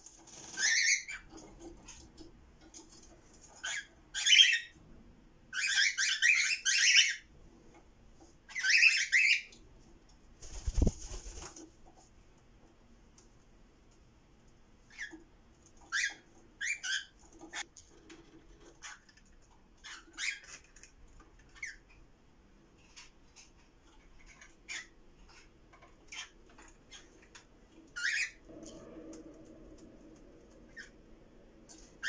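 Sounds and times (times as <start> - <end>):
cockatiels chirping: 3.6 - 4.7, 5.6 - 7.2
low steady hum: 25.2 - 32.0.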